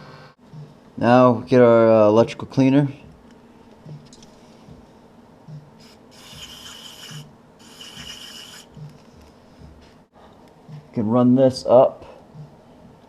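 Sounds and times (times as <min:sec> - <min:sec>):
aerosol can spraying: 0:05.8 - 0:08.9.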